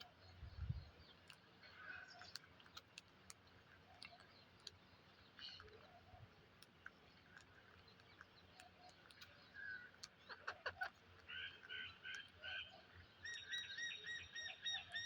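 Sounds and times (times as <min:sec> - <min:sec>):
parrots chirping softly: 0:00.0 - 0:15.0
faint clicks: 0:01.0 - 0:12.5.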